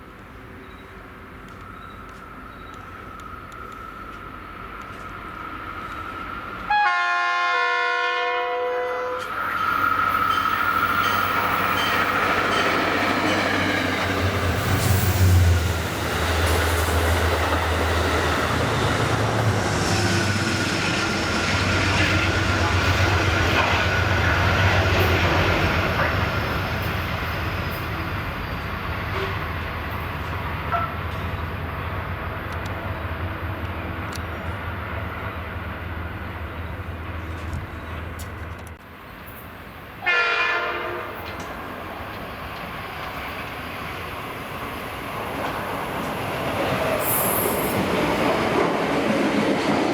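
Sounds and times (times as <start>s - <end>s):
train running past: 0.0s - 49.9s
train horn blast: 6.7s - 9.5s, 29.1s - 29.5s, 30.7s - 31.2s, 40.0s - 41.3s.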